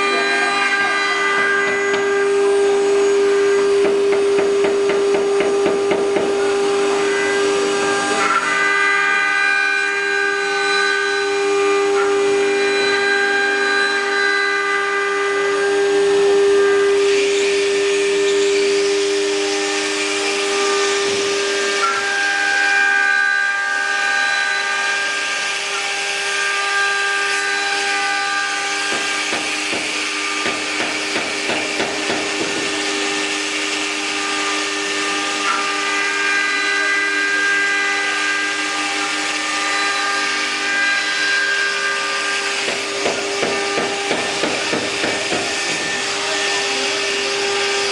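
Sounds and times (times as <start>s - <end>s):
router spindle whine: 0.0s - 47.9s
bit cutting wood rasp: 16.6s - 47.9s.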